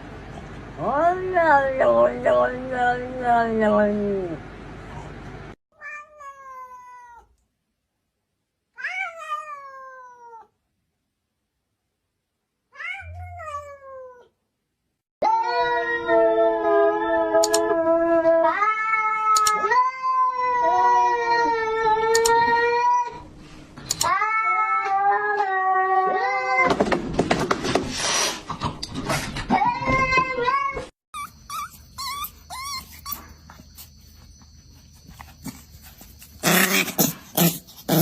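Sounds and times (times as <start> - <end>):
cat meowing and yowling: 5.8 - 7.3, 8.8 - 10.5, 12.8 - 14.3, 15.2 - 23.2, 24.0 - 26.7.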